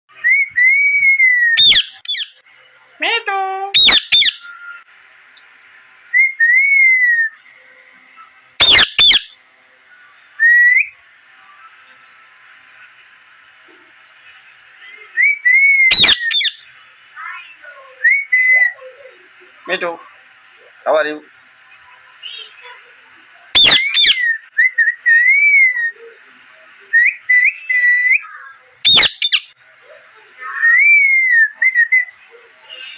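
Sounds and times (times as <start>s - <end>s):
parrot whistling: 0.2s - 2.4s, 3.7s - 4.6s, 8.6s - 9.4s, 15.2s - 16.7s, 23.6s - 26.0s, 26.9s - 29.6s
parrot chirping: 1.6s - 2.4s, 3.0s - 4.8s, 8.6s - 9.4s, 14.8s - 20.0s, 22.2s - 26.2s, 26.9s - 32.9s.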